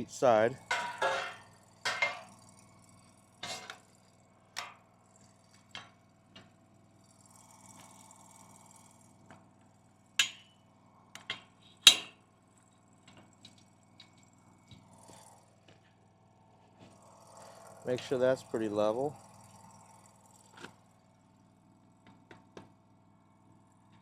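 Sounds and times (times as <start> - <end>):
metal knocks and clinks: 0.6 - 2.4, 10.2 - 10.5, 11.2 - 12.2.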